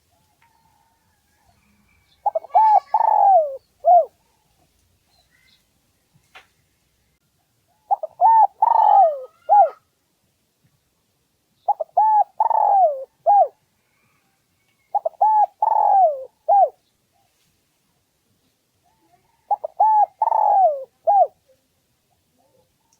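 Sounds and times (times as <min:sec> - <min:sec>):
dove cooing: 0:02.1 - 0:04.2, 0:07.8 - 0:09.8, 0:11.7 - 0:13.6, 0:14.9 - 0:16.8, 0:19.2 - 0:21.4.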